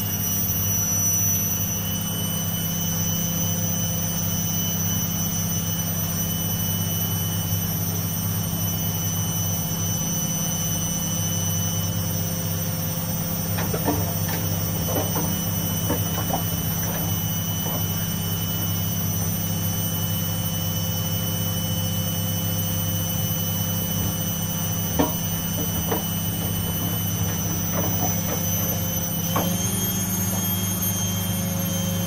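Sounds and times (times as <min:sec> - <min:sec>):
washing machines spinning: 0:00.0 - 0:32.0
light rattles: 0:13.2 - 0:19.4, 0:23.5 - 0:29.9.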